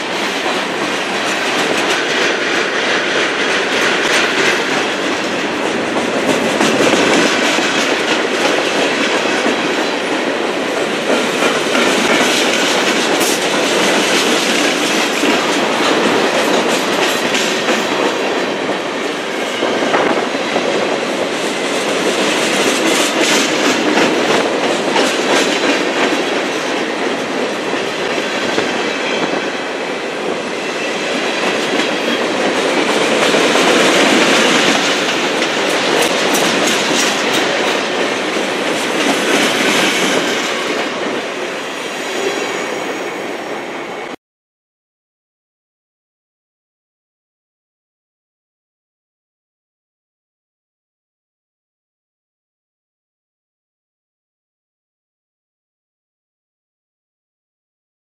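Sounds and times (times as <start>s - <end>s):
steel wheels clattering on rails: 0.0s - 43.2s
wheels clicking over rail joints: 31.4s - 41.1s.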